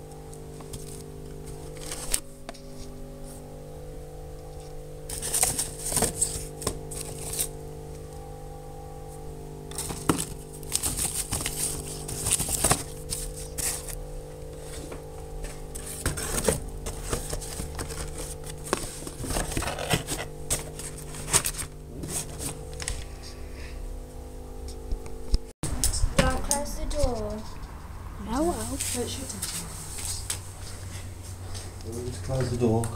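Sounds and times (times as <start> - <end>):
steady electrical hum: 0.0 - 32.9.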